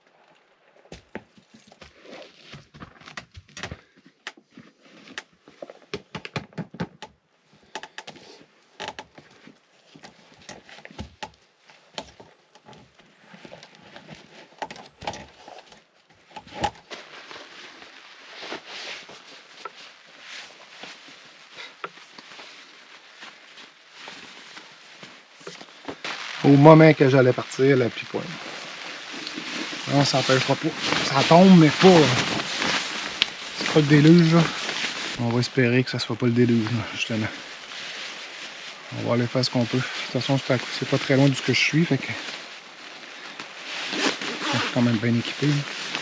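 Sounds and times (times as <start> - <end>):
objects being handled: 12.0 - 35.6, 36.4 - 46.0
soft hiss: 16.9 - 46.0.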